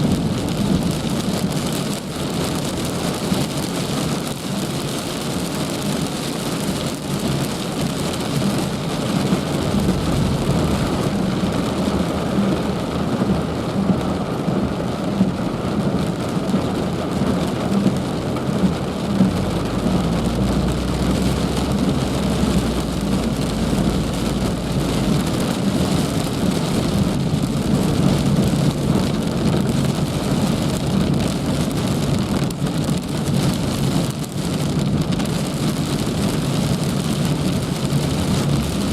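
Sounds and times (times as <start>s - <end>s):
heavy rain falling: 0.0s - 38.9s
low rumble: 8.2s - 16.1s, 17.8s - 33.2s.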